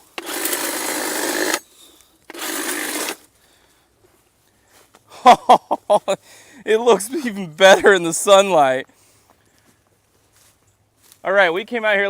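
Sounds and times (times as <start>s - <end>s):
power cutting tool cutting brush: 0.0s - 1.7s, 2.3s - 3.2s.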